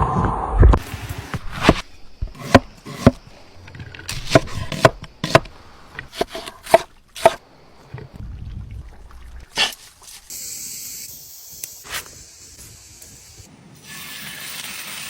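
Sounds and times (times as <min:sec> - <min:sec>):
knife chopping on cutting board: 0:01.4 - 0:03.2, 0:04.1 - 0:07.4.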